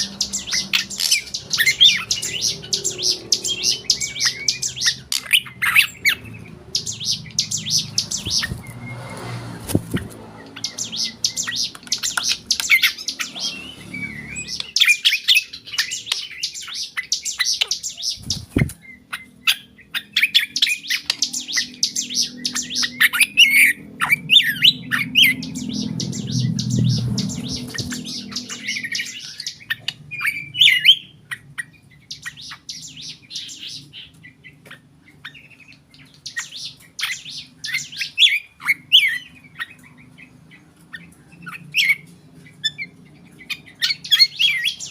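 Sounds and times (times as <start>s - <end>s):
bird chirps and whistles: 0.0s - 6.2s, 10.6s - 31.4s.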